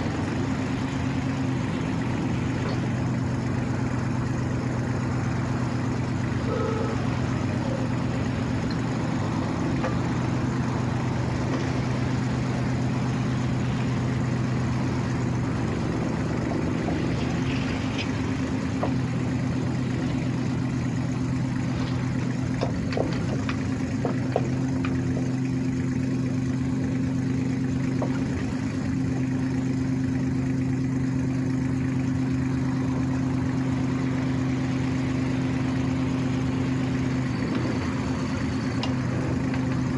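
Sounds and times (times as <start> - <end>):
excavator diesel engine idling: 0.0 - 39.9.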